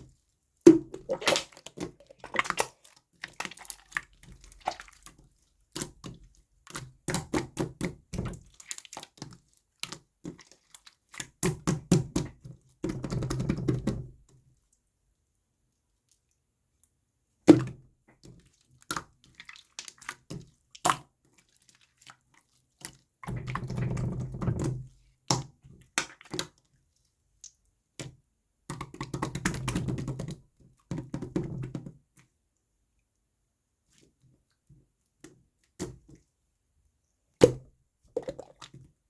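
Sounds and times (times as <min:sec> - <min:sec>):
slime crackling and squelching: 0:00.8 - 0:06.0.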